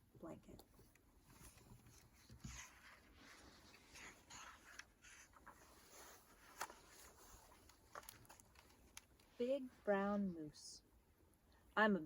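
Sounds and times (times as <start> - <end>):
faint rustling: 0.7 - 10.2.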